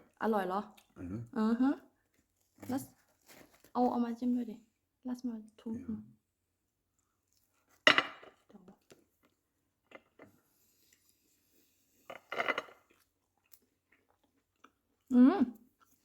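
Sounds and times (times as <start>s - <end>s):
dishes clattering: 7.9s - 8.4s.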